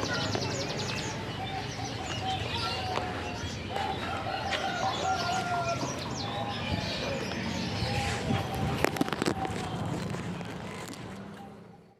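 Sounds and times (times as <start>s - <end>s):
birds chirping and whistling: 0.0s - 10.8s.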